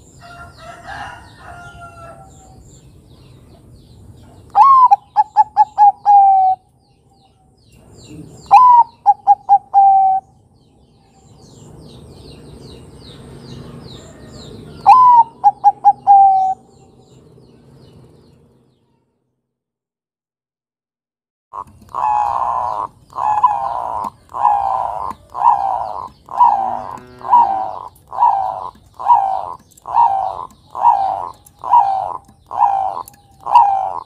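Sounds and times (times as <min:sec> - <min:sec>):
small birds chirping: 0:00.0 - 0:19.2, 0:21.6 - 0:34.0
dove cooing: 0:04.5 - 0:06.6, 0:08.1 - 0:10.3, 0:14.0 - 0:16.7, 0:21.6 - 0:34.0.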